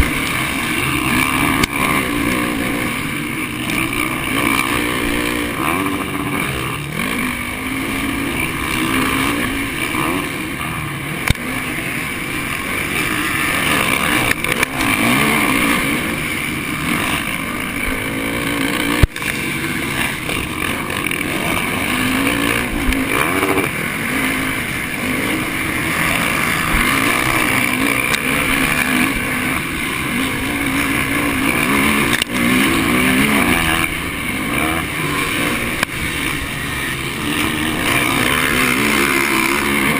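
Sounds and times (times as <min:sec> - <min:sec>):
motocross bike engine revving: 0:00.0 - 0:39.9
steady rush of noise: 0:00.0 - 0:39.9.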